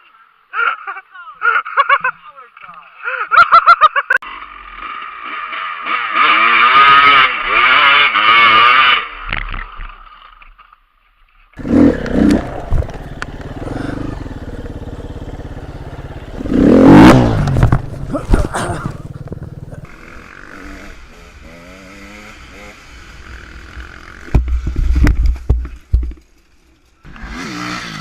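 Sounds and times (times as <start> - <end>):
dirt bike engines revving high: 4.8 - 9.1, 11.6 - 24.3
dirt bike engine running steadily: 11.6 - 28.0.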